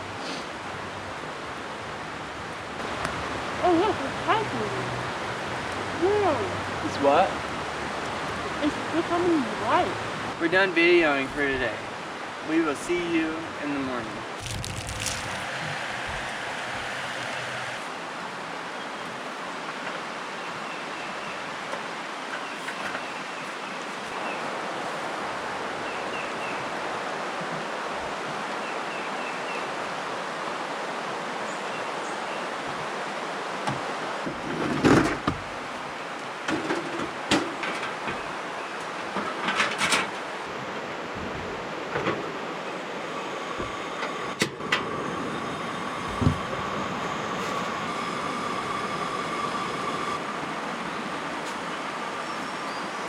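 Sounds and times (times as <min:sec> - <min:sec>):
stream water flowing: 0:00.0 - 0:53.0
sharp knocks and thumps: 0:46.1 - 0:46.4.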